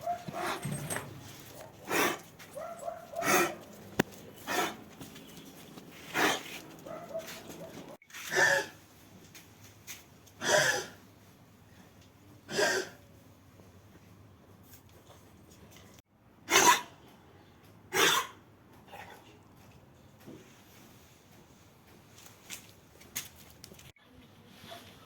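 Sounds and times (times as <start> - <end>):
dog coughing harshly: 1.8 - 2.2, 3.1 - 3.6, 6.1 - 6.4, 8.3 - 8.8, 10.4 - 11.0, 12.5 - 13.0, 16.5 - 17.0, 17.9 - 18.4.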